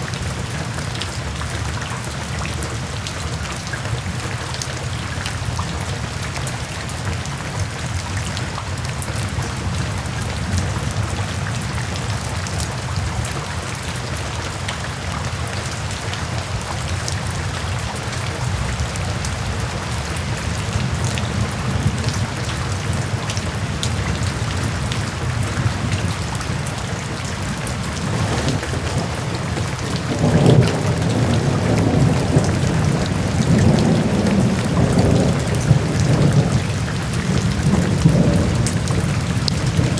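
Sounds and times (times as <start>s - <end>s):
heavy rain: 0.0s - 39.9s
rolling thunder: 20.8s - 39.9s.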